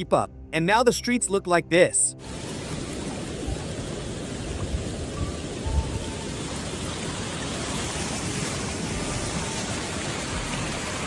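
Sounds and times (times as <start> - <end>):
heavy rain hissing: 2.2 - 11.0
rushing floodwater: 2.2 - 11.0.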